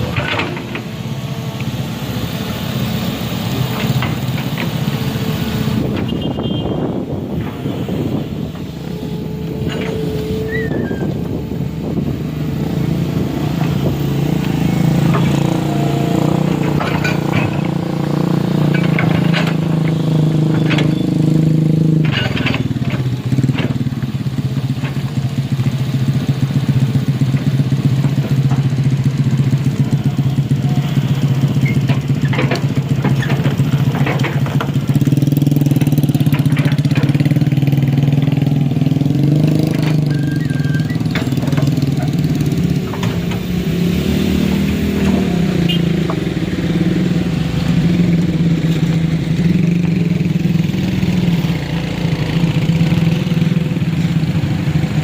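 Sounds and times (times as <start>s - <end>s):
clanks and knocks: 0.0s - 0.9s, 16.4s - 17.8s, 18.6s - 21.0s, 21.9s - 23.9s, 31.5s - 38.1s, 40.9s - 43.7s
vehicle engine running hard: 0.0s - 55.0s.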